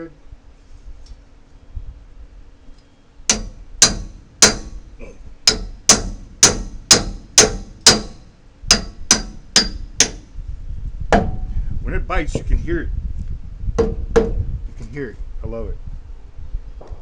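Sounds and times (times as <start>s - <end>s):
hammer striking metal clamp: 3.3s - 4.8s, 5.4s - 10.2s.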